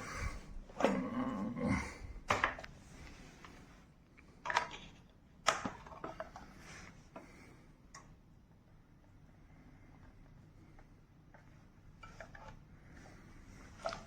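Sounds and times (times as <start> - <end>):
plastic parts clicking and knocking: 2.3 - 2.7, 4.2 - 7.3.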